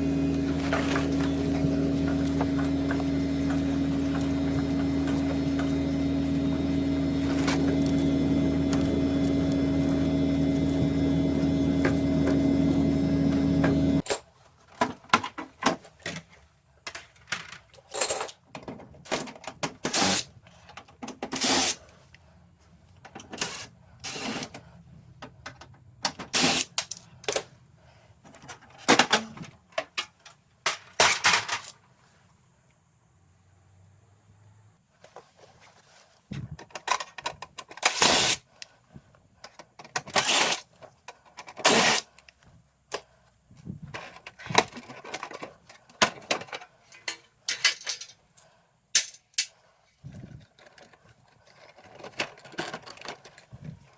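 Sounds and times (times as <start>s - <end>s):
hard parts being handled: 0.0s - 12.6s, 28.2s - 31.9s, 43.7s - 53.9s
air conditioner humming: 0.0s - 14.0s.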